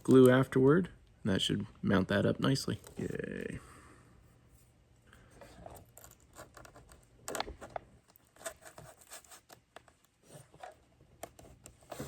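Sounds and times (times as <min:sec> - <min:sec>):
scratches clicks and scrapes: 0:05.4 - 0:12.0.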